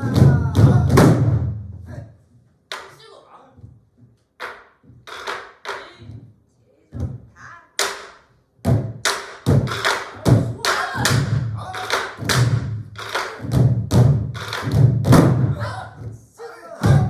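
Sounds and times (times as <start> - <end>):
barrel drums thumping: 0.0 - 1.9, 7.0 - 16.2, 16.8 - 17.0.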